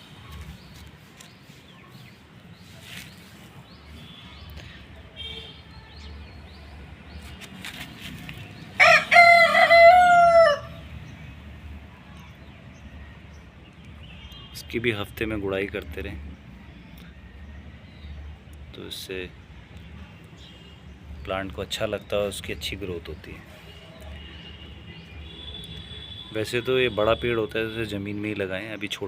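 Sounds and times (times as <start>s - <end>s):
small birds chirping: 0.0s - 9.6s, 10.8s - 29.0s
rooster crowing: 8.8s - 10.8s.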